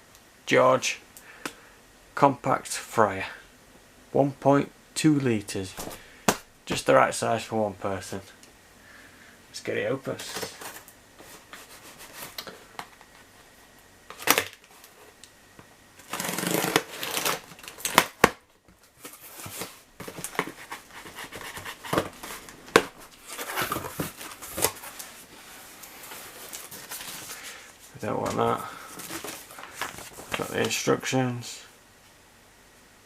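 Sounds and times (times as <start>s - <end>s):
cardboard rustling and scraping: 10.1s - 13.6s, 16.0s - 18.1s, 18.8s - 30.8s.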